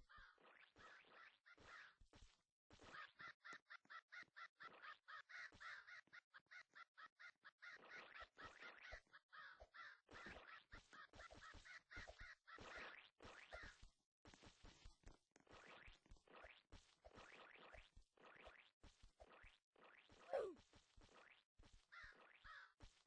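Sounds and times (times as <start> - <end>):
bird calling rapidly: 20.3 - 20.6.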